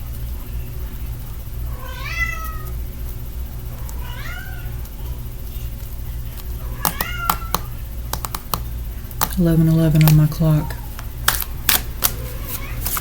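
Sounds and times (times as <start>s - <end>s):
steady low hum: 0.0s - 13.0s
cat meowing: 1.8s - 2.6s, 4.0s - 4.7s, 6.6s - 7.6s.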